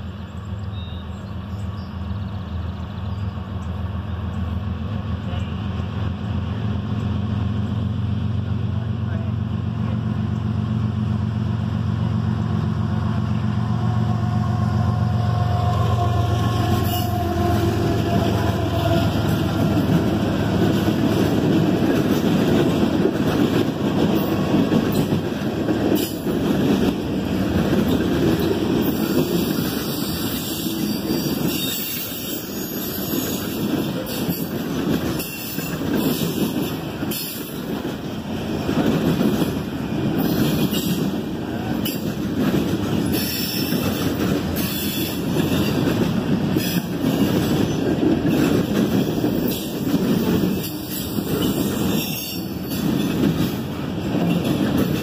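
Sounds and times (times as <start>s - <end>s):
freight train wheels rumbling: 0.0s - 55.0s
wheels clicking over rail joints: 16.6s - 55.0s.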